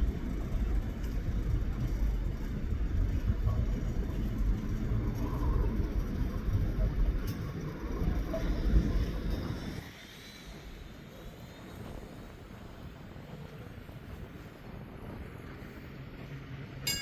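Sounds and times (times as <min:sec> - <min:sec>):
locomotive rumbling: 0:00.0 - 0:09.8.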